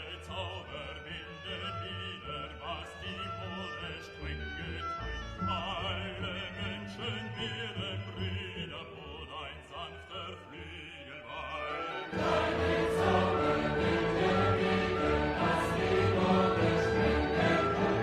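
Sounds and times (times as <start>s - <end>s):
orchestral accompaniment: 11.3s - 18.0s.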